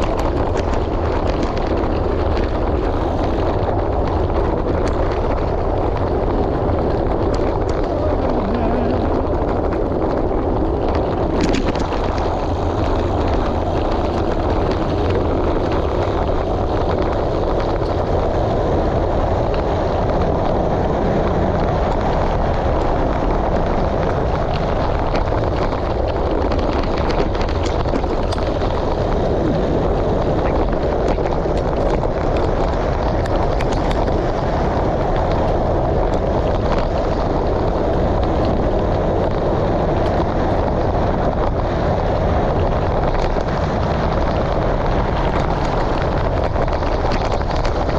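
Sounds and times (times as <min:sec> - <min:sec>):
wind noise on microphone: 0:00.0 - 0:47.9.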